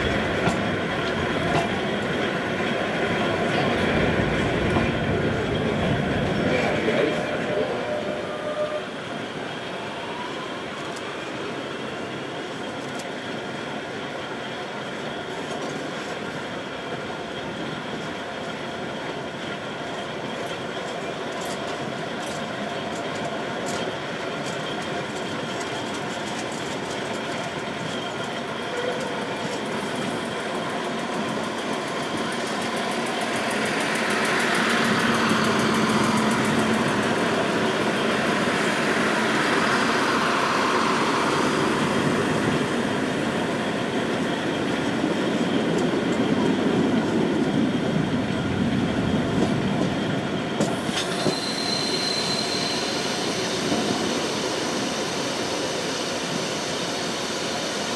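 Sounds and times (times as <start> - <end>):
passing diesel railcar: 0.0 - 57.9
train rumble and wheels on rails: 0.0 - 57.9
high wheel squeal: 7.2 - 9.1, 50.8 - 55.5.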